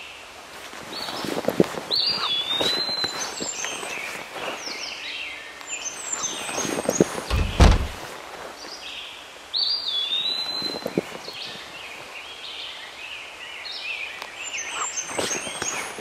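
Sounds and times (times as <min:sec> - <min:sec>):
bird chirps: 0:01.9 - 0:05.0, 0:05.6 - 0:08.0, 0:09.6 - 0:11.8, 0:14.1 - 0:16.0
soft knocks: 0:07.3 - 0:08.0.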